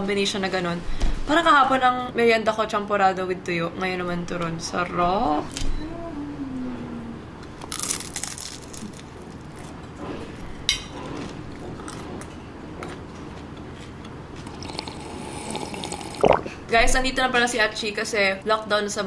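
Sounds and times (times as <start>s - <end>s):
crispy food crunching: 7.6s - 9.9s.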